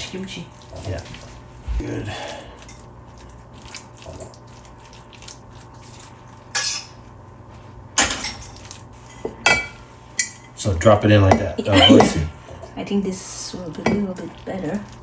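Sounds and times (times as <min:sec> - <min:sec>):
dishes and utensils clattering: 0:08.0 - 0:12.7, 0:13.7 - 0:14.8.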